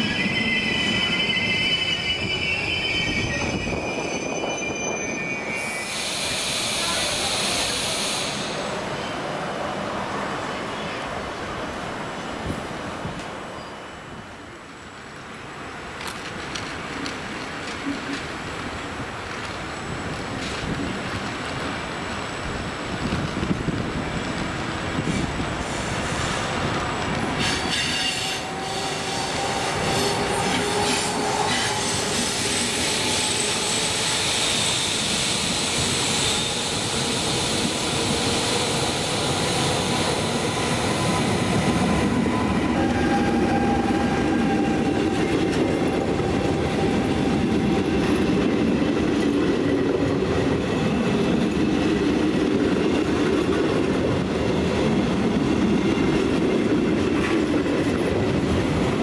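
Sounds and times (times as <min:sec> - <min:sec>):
train wheels squealing: 0:00.0 - 0:09.2, 0:13.5 - 0:14.2, 0:25.1 - 0:48.4.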